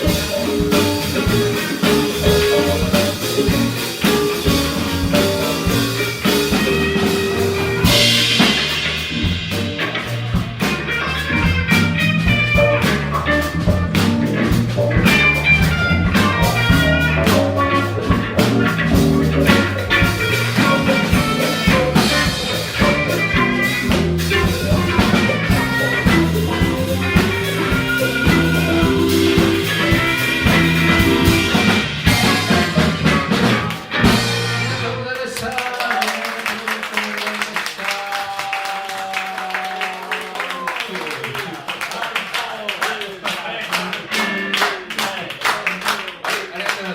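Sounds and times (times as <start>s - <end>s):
electric bass line: 0.0s - 35.0s
electric guitar: 0.0s - 35.0s
keyboards: 0.0s - 35.2s
drum kit: 0.0s - 35.3s.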